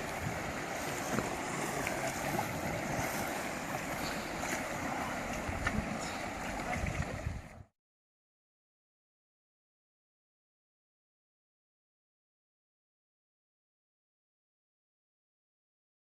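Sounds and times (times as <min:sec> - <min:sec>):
river water rushing: 0:00.0 - 0:07.7
wind buffeting microphone: 0:00.0 - 0:07.7.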